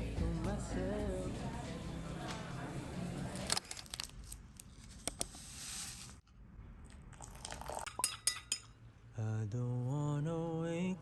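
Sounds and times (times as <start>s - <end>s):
crunching crackling handling noises: 3.5s - 5.3s.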